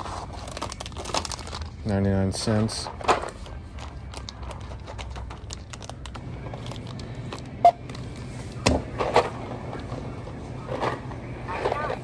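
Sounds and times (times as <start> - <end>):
low steady hum: 2.9 - 12.0.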